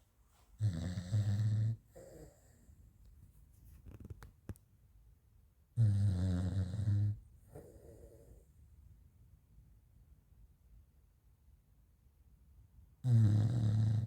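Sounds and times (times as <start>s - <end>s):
dog snoring: 0.6s - 2.7s, 5.8s - 8.5s, 13.0s - 14.0s.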